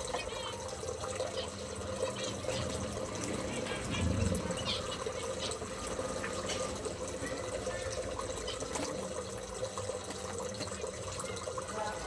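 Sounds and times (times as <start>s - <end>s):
small birds chirping: 0.0s - 9.1s
water trickling: 0.0s - 12.0s.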